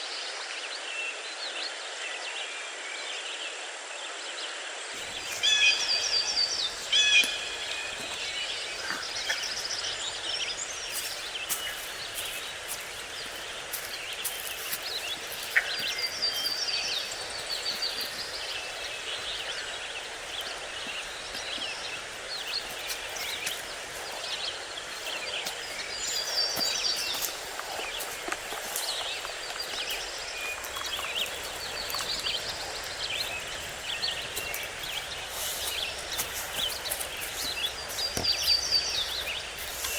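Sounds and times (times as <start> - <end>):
outdoor background hiss: 5.0 - 39.9
songbirds chirping: 5.0 - 39.9.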